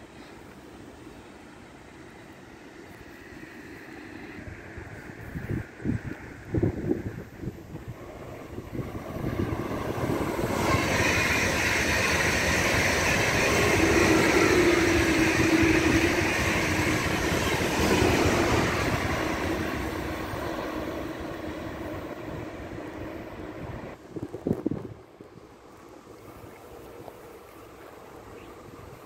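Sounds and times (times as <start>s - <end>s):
train wheels rolling on rails: 1.9s - 25.0s.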